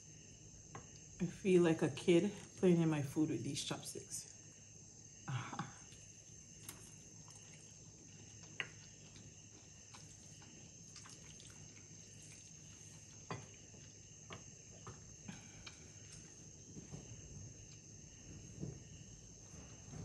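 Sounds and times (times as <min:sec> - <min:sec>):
person chewing noodles: 0:05.8 - 0:16.9.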